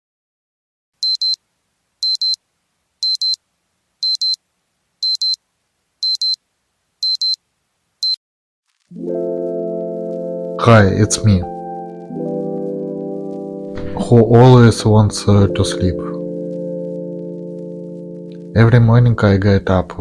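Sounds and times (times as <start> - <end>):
alarm clock beeping: 1.0 - 1.4, 2.0 - 2.4, 3.0 - 3.4, 4.0 - 4.4, 5.0 - 5.4, 7.0 - 7.4.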